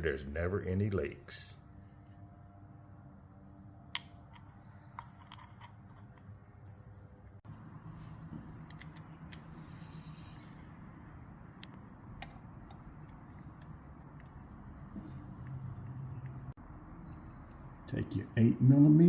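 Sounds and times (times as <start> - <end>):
small metal parts clicking: 4.0 - 6.9.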